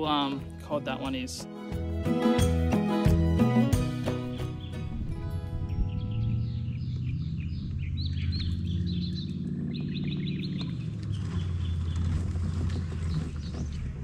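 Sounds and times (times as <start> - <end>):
birds chirping: 0.0 - 14.0
low steady rumble: 4.8 - 14.0.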